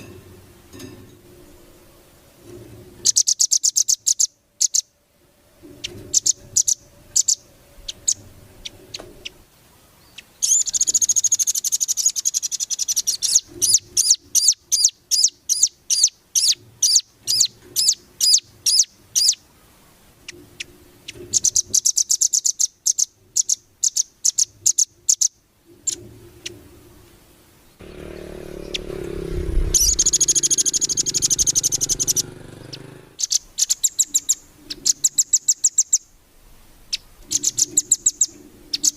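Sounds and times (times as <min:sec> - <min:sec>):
bird trill: 0:03.0 - 0:05.0, 0:05.6 - 0:09.4, 0:10.0 - 0:19.4, 0:20.3 - 0:26.6, 0:27.8 - 0:36.2, 0:36.9 - 0:38.9
bird song high notes: 0:27.7 - 0:36.1.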